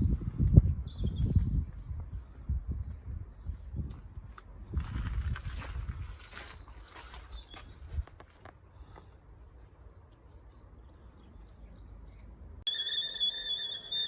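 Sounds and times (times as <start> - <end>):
wind rumble on microphone: 0.0 - 6.6
loud steady high whistle: 12.7 - 14.0.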